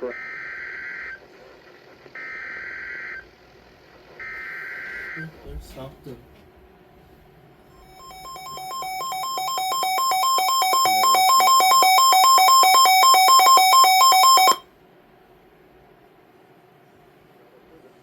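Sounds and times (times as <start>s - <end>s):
radio alarm two-pitch beeping: 7.8s - 14.6s.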